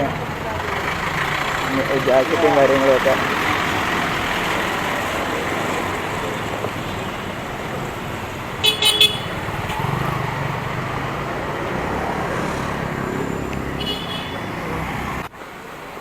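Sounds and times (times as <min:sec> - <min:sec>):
engine rumbling past: 0:00.0 - 0:15.3
street traffic: 0:00.0 - 0:16.0
vehicle horn tooting: 0:08.6 - 0:09.4, 0:13.8 - 0:14.5.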